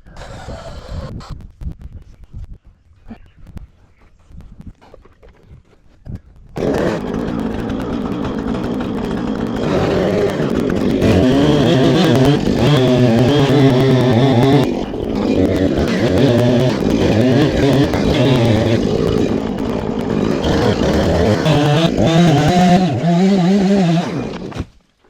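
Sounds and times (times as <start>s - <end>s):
engine starting and revving: 6.6s - 24.8s.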